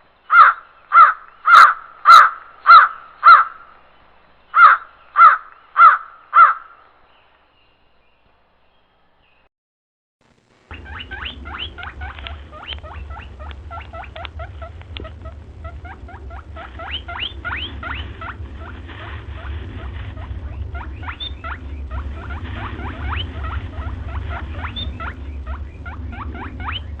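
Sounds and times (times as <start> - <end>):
steady low rumble: 10.2 - 27.0
small animals squeaking: 10.7 - 27.0.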